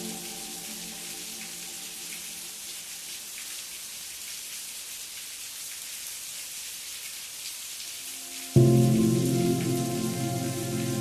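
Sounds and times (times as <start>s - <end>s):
calm music with sustained chord: 0.0s - 2.6s, 8.1s - 11.0s
rain hiss: 0.0s - 11.0s.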